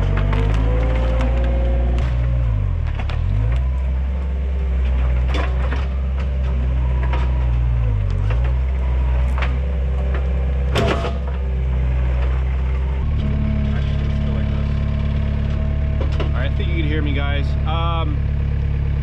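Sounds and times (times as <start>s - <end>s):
sharp cracks and knocks: 0.0s - 4.0s, 4.7s - 12.6s, 15.5s - 16.4s
track loader diesel engine: 0.0s - 19.0s.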